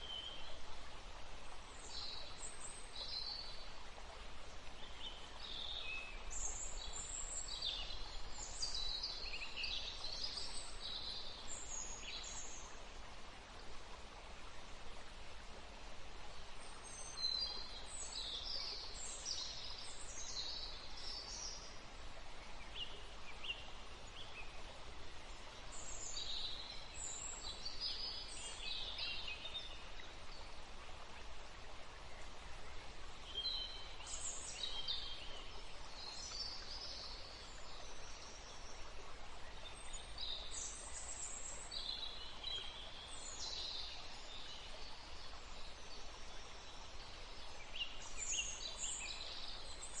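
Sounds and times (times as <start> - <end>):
background hiss: 0.0 - 50.0
songbirds singing: 16.3 - 50.0.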